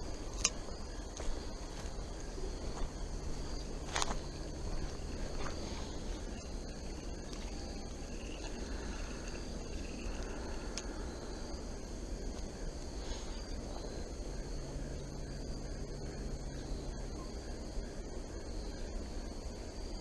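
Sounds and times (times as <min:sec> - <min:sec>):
insects buzzing: 0:00.0 - 0:20.0
low rushing background: 0:00.0 - 0:20.0.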